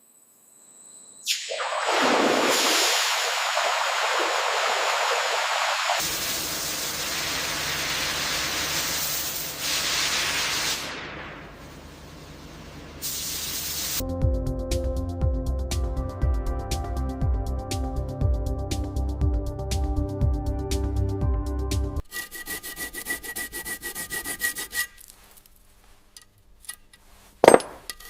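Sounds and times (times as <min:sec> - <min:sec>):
hissing spray: 0:01.3 - 0:11.3, 0:13.0 - 0:14.0
rushing noise with low hum: 0:01.7 - 0:06.1
music: 0:14.0 - 0:22.0.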